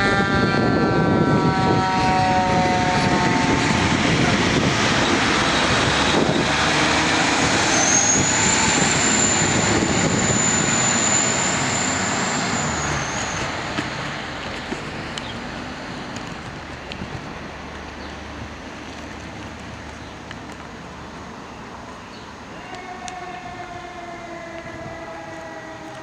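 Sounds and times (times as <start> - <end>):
air horn blast: 0.0 - 4.7, 22.6 - 26.0
fire truck diesel engine: 0.0 - 26.0.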